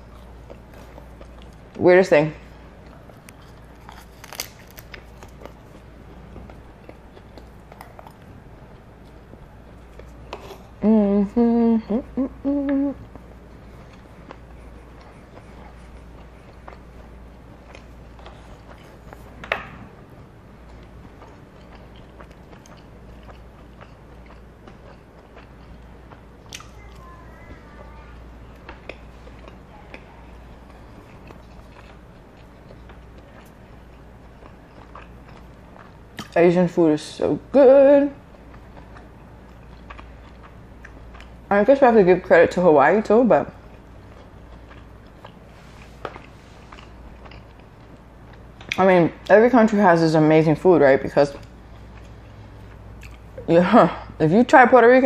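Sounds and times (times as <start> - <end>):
person chewing food: 0.0 - 1.8, 2.4 - 36.4, 38.2 - 41.5, 43.5 - 48.8, 51.3 - 53.5
small crunches and clicks: 3.1 - 5.8.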